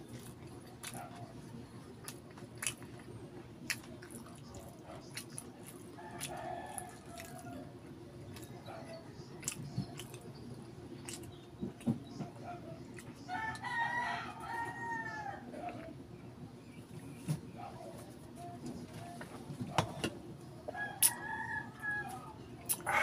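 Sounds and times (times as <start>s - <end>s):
wet chewing clicks and smacks: 0.0s - 7.5s, 8.3s - 10.3s, 11.0s - 13.6s, 22.6s - 22.9s.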